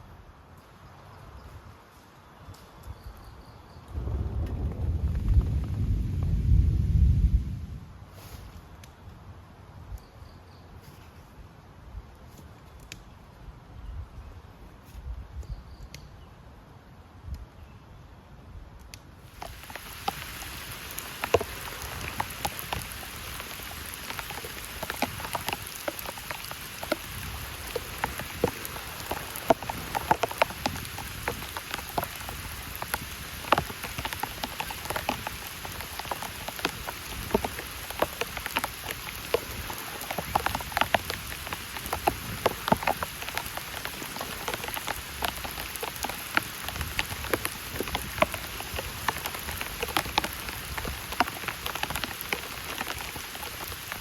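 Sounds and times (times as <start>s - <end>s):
heavy rain falling: 3.9s - 7.4s, 19.3s - 54.0s.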